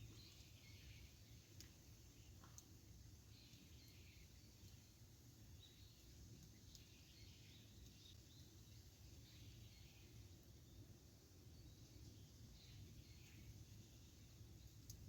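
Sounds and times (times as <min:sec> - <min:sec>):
campfire crackling: 0:06.0 - 0:06.9, 0:14.2 - 0:15.0.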